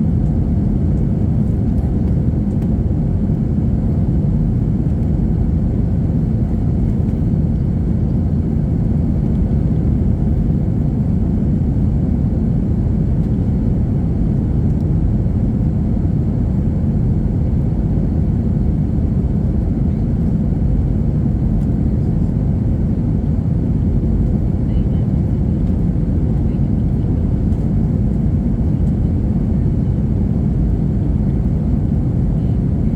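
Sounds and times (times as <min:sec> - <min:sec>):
jet engine roar in cabin: 0:00.0 - 0:32.9.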